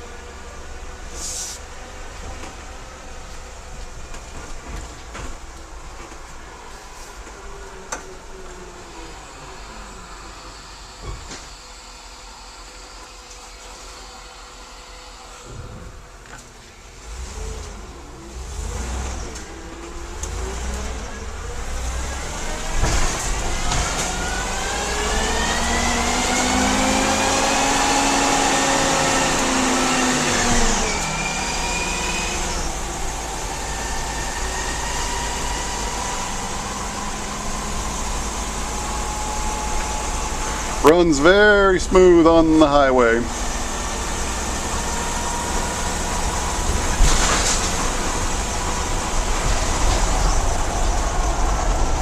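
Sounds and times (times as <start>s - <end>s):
bus engine accelerating: 0.0s - 52.0s.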